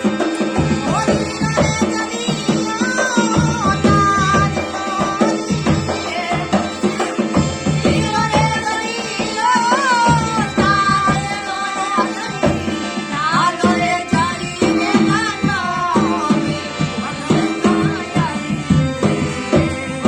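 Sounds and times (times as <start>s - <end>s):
hand drum beat: 0.0s - 11.4s
folk devotional singing: 0.0s - 20.0s.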